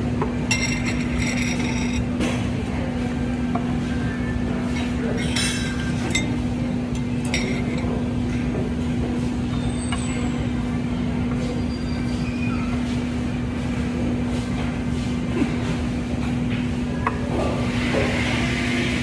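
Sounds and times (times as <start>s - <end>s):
low mechanical hum: 0.0s - 19.0s
tableware clinking: 0.4s - 2.5s, 4.7s - 8.0s.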